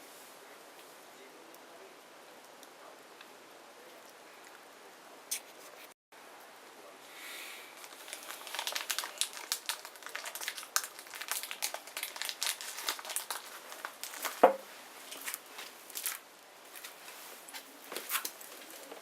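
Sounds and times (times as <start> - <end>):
bonfire crackling and popping: 7.7 - 19.0.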